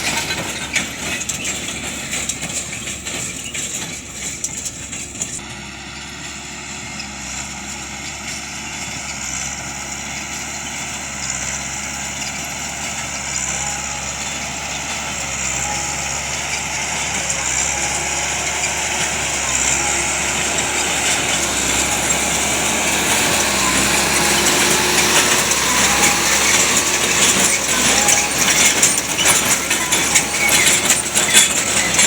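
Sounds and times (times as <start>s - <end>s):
metallic clinking and rattling: 0.0s - 5.4s, 14.3s - 32.0s
tractor engine running: 0.0s - 32.0s.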